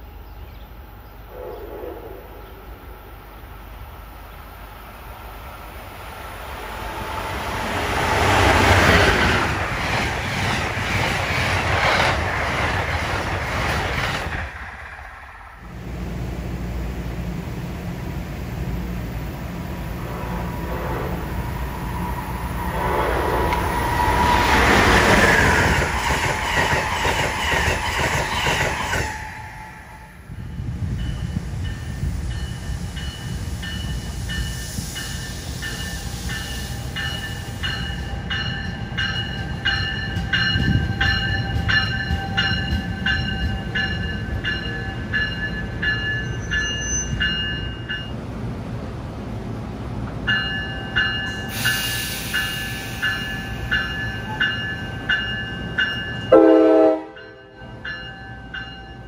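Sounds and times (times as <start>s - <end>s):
low train rumble: 0.0s - 59.0s
train rail clatter: 7.6s - 15.2s, 22.0s - 30.2s, 30.9s - 48.2s, 50.0s - 59.0s
high ringing tone: 35.8s - 48.1s.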